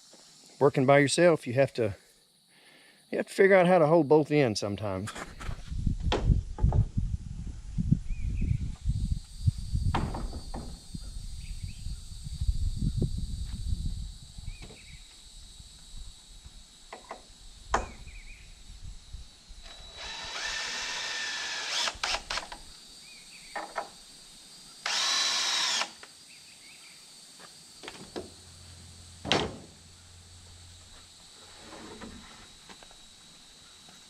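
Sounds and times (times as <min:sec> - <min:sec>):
power drill driving screws: 0:19.6 - 0:22.6, 0:24.8 - 0:26.0.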